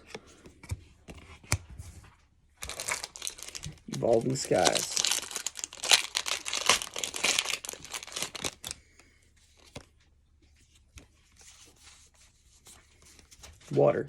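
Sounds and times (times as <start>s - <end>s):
foil wrapper crinkling and tearing: 2.6s - 8.9s.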